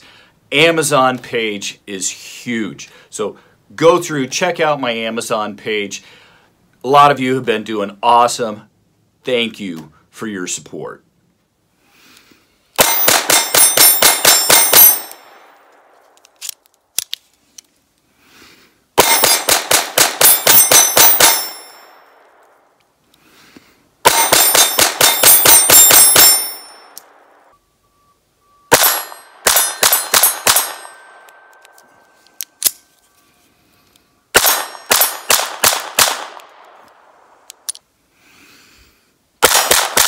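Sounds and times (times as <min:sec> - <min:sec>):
bullets ringing on steel targets: 0:12.8 - 0:15.6, 0:19.0 - 0:22.2, 0:24.1 - 0:27.4, 0:28.7 - 0:31.7, 0:34.4 - 0:35.8
rapid pistol shots: 0:12.8 - 0:15.6, 0:19.0 - 0:21.8, 0:24.0 - 0:26.6, 0:28.7 - 0:31.2, 0:34.4 - 0:36.6, 0:39.4 - 0:40.0.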